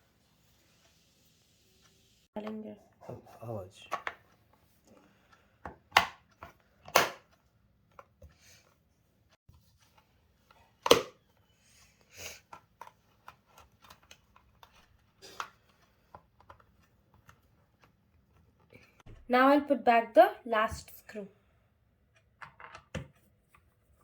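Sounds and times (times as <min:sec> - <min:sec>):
plastic parts clicking and knocking: 0:22.1 - 0:23.2.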